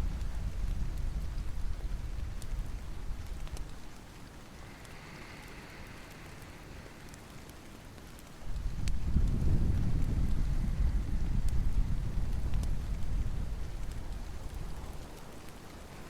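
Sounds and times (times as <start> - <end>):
rain falling: 0.0 - 16.0
wood fire crackling: 0.0 - 16.0
low rumble: 8.5 - 14.8.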